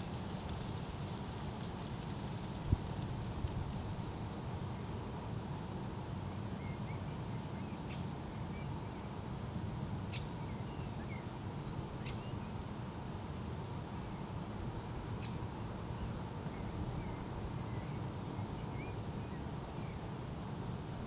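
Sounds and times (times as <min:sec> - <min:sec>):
low outdoor background noise: 0:00.0 - 0:21.0
faint bird chirps: 0:12.0 - 0:12.5, 0:15.2 - 0:20.0.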